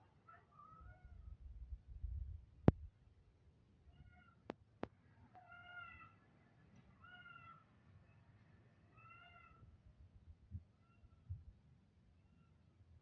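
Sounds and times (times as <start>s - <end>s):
faint animal calls: 0.3s - 1.2s, 3.9s - 4.5s, 5.3s - 6.3s, 6.9s - 8.2s, 8.9s - 9.7s.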